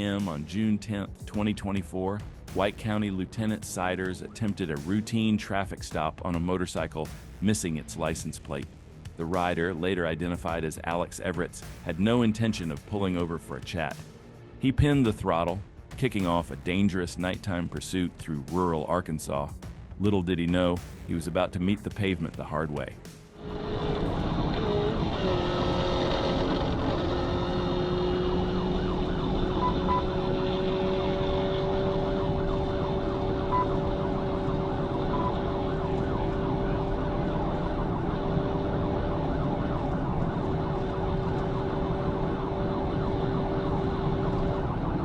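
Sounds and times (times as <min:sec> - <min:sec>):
car engine and road noise: 0:23.1 - 0:45.0
police siren: 0:23.4 - 0:45.0.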